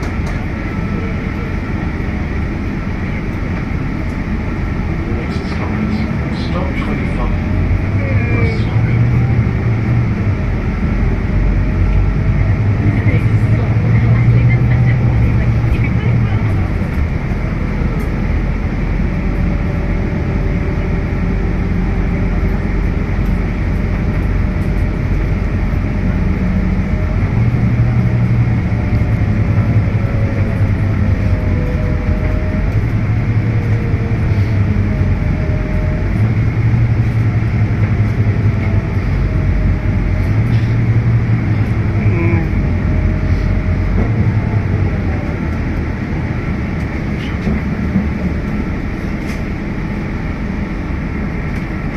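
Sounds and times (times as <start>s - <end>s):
bus engine drone: 0.0s - 51.9s.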